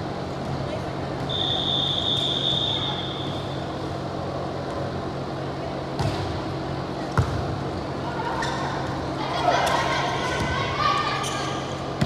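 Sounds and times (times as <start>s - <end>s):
referee's whistle long note: 1.3s - 3.3s.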